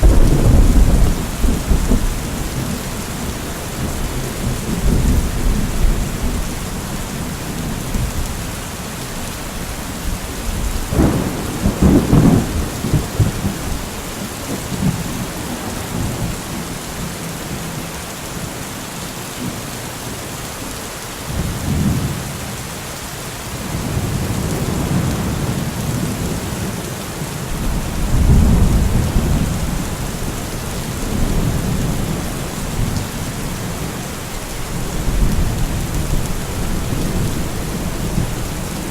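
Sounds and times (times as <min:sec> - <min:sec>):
thunder rumbling: 0:00.0 - 0:08.5, 0:10.0 - 0:16.3, 0:27.5 - 0:38.9
steady rain falling: 0:00.0 - 0:38.9.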